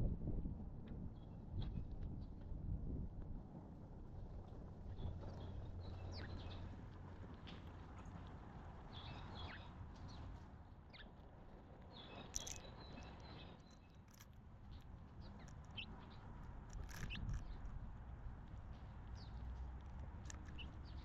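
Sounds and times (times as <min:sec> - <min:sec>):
small birds chirping: 0:08.9 - 0:10.2, 0:11.9 - 0:17.8, 0:18.7 - 0:21.0.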